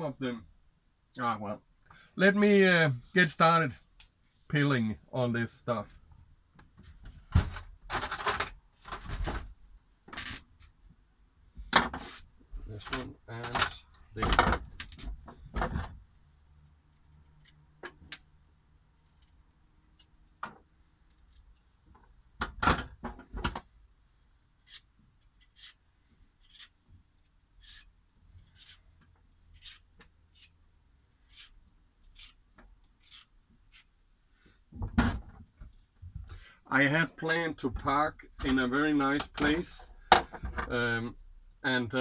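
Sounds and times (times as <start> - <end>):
vegetable peeler scraping: 24.6 - 25.8, 26.4 - 26.8, 27.6 - 28.8, 29.6 - 30.6, 31.2 - 32.4, 33.0 - 33.9.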